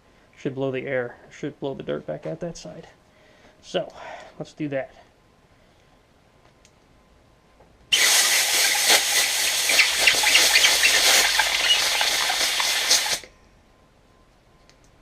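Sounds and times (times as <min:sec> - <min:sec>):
compressed air hissing: 0:07.9 - 0:13.3.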